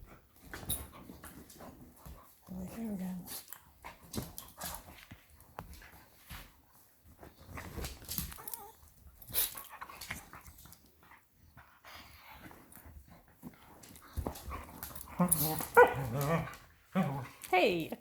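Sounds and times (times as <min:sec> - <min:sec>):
dogs scuffling on chair cover: 0:00.1 - 0:10.9, 0:12.3 - 0:17.3
dogs growling and whimpering: 0:14.9 - 0:17.5.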